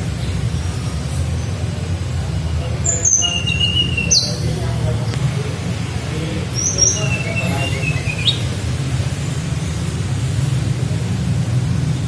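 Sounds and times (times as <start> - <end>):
flycatcher singing: 2.8 - 4.7, 6.5 - 8.7.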